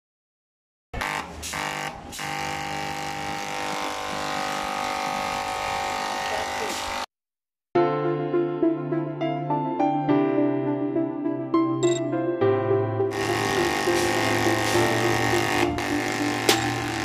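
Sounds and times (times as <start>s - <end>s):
overlock sewing machine running: 1.5s - 7.0s, 13.2s - 17.0s.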